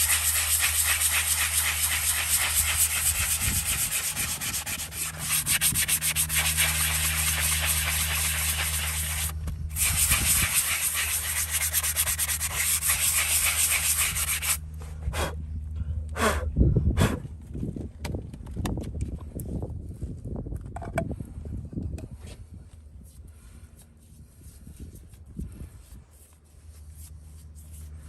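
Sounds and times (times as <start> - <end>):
rasp scraping horse's hoof: 0.0 - 14.6.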